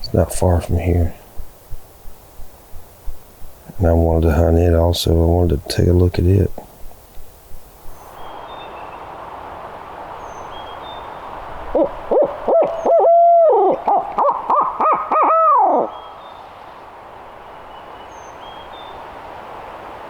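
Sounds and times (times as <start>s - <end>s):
owl call hoots: 11.7s - 16.2s.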